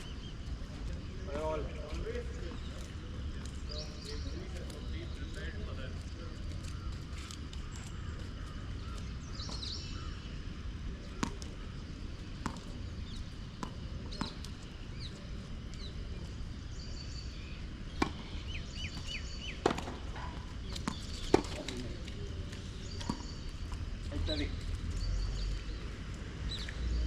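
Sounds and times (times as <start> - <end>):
birds chirping: 0.0 - 27.0
tennis balls hit with rackets: 11.0 - 11.6, 12.4 - 12.9, 13.5 - 14.7, 17.9 - 23.8.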